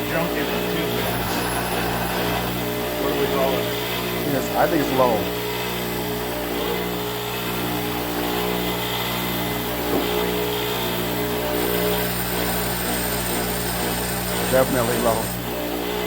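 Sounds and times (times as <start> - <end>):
grinder motor running: 0.0 - 16.0
iron grinding against wheel: 1.0 - 2.9, 11.4 - 15.5.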